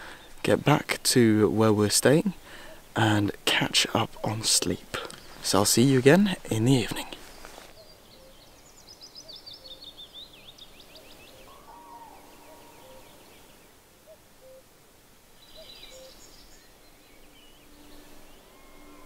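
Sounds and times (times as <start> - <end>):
small birds chirping: 2.1 - 14.7, 15.3 - 19.0
short low bird calls: 7.0 - 14.7.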